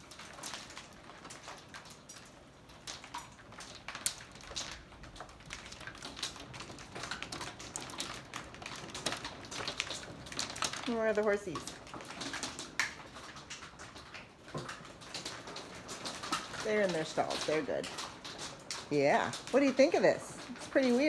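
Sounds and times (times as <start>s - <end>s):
hailstones ticking: 0.0s - 21.0s.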